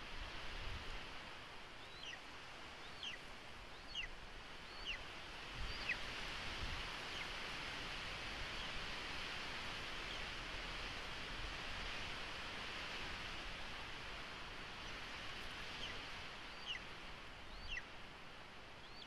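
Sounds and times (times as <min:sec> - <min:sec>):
steady outdoor hiss: 0:00.0 - 0:19.0
high downward bird calls: 0:16.6 - 0:16.8.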